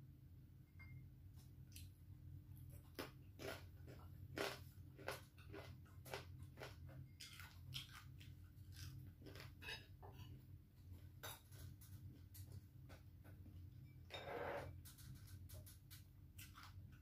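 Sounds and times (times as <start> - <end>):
crunching and chewing: 2.6 - 13.5, 14.8 - 17.0.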